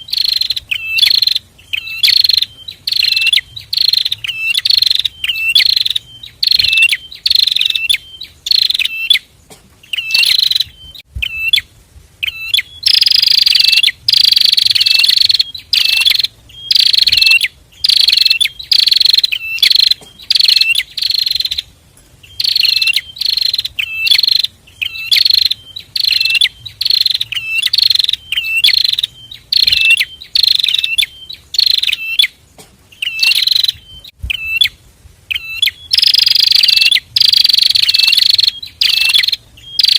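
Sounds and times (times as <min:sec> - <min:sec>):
birds singing repeated short notes: 0:00.0 - 0:39.9.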